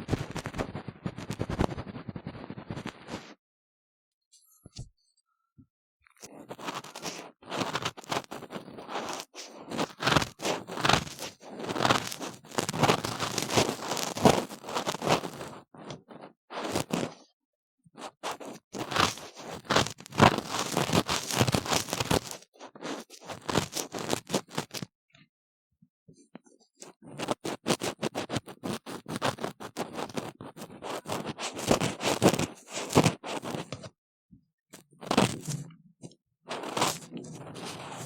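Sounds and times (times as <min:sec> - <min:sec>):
ear tool scraping silicone: 0:06.2 - 0:17.2, 0:18.0 - 0:24.8, 0:26.8 - 0:33.9, 0:34.8 - 0:38.0.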